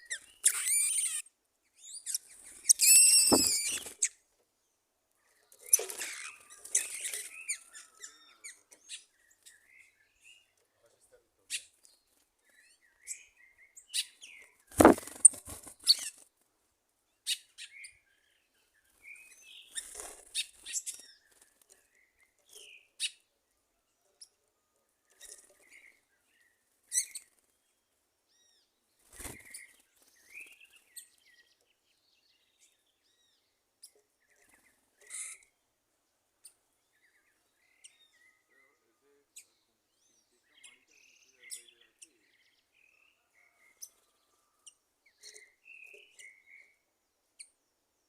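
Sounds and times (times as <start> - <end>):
birds chirping: 1.9 - 4.1, 36.9 - 46.9
loud thumps: 3.3 - 3.8, 14.8 - 15.1.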